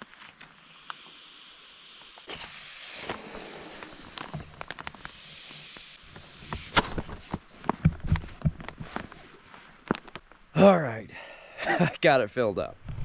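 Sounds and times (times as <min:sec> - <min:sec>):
person blowing into mattress valve: 0:00.4 - 0:07.3.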